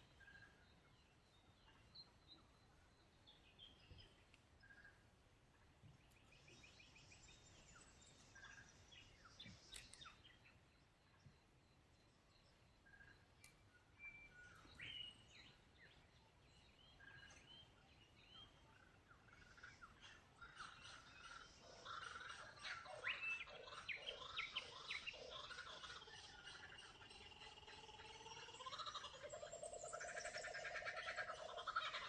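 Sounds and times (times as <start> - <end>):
birds chirping and singing: 5.8 - 11.4, 12.3 - 32.0.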